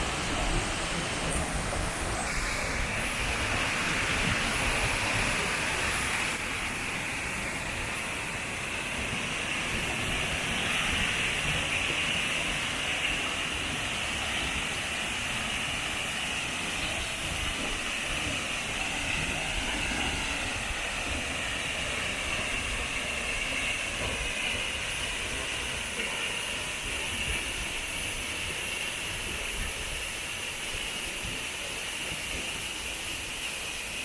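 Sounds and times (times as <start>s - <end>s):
rushing water of waterfall: 0.0s - 34.0s.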